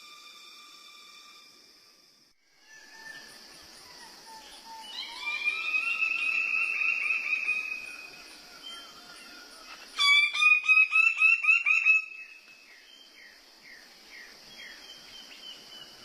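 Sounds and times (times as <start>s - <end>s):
high insect-like hiss: 0.0s - 16.0s
bird calling: 2.7s - 13.4s.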